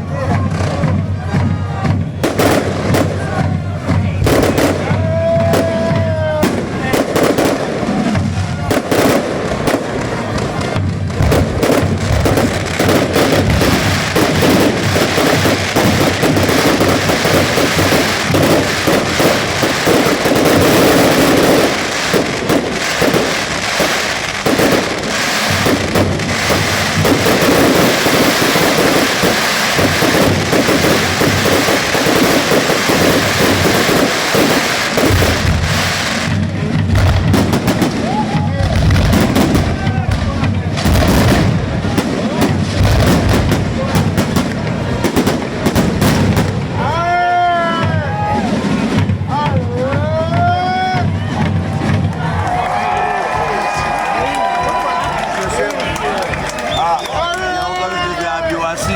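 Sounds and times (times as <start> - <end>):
fireworks bangs and crackling: 0.0 - 58.9.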